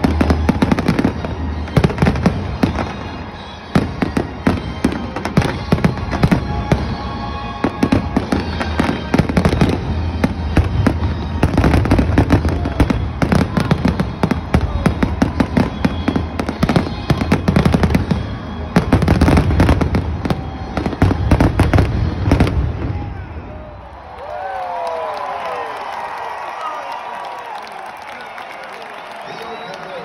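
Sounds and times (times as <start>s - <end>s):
fireworks bangs and crackles: 0.0s - 23.4s
music: 0.0s - 23.6s.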